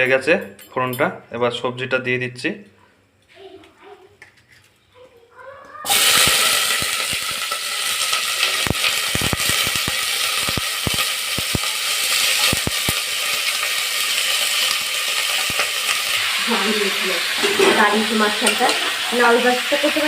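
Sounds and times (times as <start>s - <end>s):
vegetables sizzling in oil: 5.8s - 20.0s.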